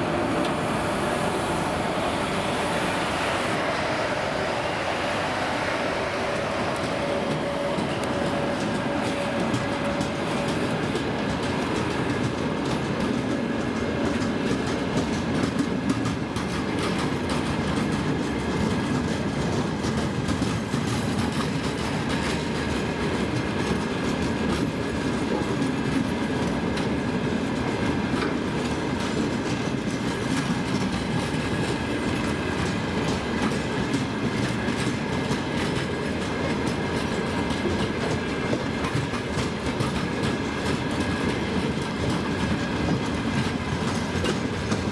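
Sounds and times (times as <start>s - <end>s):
train wheels clattering over rail joints: 5.1s - 44.9s.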